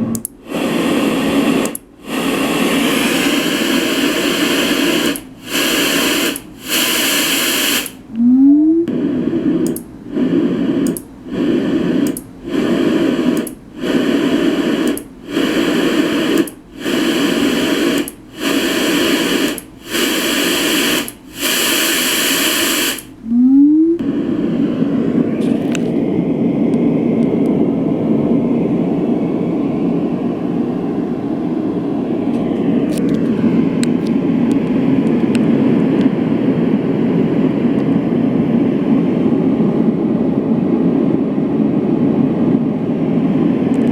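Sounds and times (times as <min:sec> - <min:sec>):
white noise machine hiss bursts: 0:00.0 - 0:32.9
rising tone: 0:23.3 - 0:24.1.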